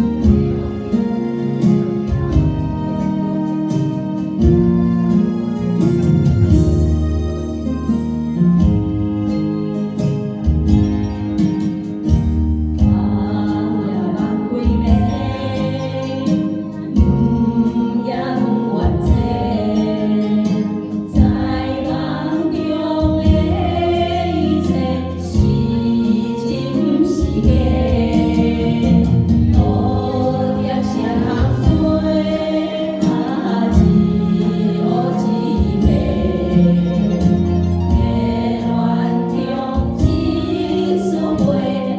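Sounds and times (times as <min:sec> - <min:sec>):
instrumental backing with beat: 0:00.0 - 0:41.9
people singing: 0:12.8 - 0:41.9.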